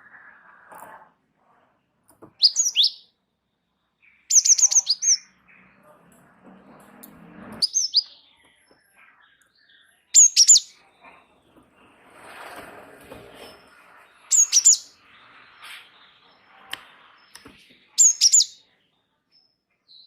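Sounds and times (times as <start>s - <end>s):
songbird calling high falling notes: 2.4s - 3.1s, 7.6s - 8.3s, 14.3s - 17.4s.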